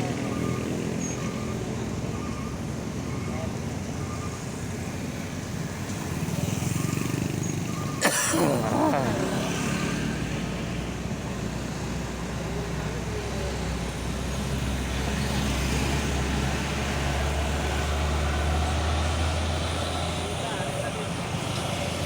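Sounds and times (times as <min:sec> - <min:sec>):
road noise: 0:00.0 - 0:22.0
large vehicle engine drone: 0:08.6 - 0:22.0.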